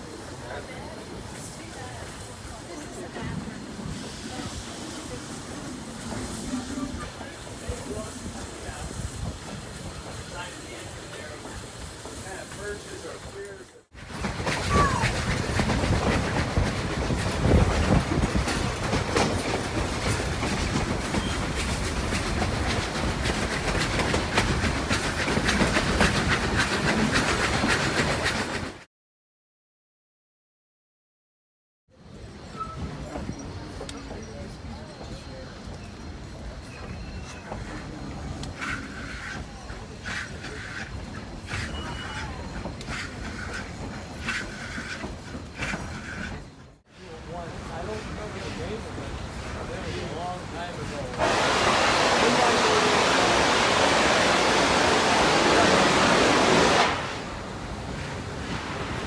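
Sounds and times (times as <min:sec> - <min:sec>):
steam train chuffing: 0:00.0 - 0:28.8, 0:32.1 - 0:59.0
railroad cars rumbling: 0:00.0 - 0:28.9, 0:32.0 - 0:59.0
wheels clicking over rails: 0:32.6 - 0:46.8.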